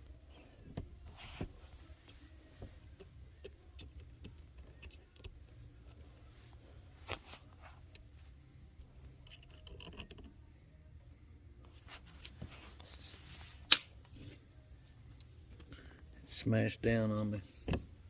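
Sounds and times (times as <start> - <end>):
steady low hum: 0.0 - 18.0
metal parts clicking and clinking: 9.2 - 10.3.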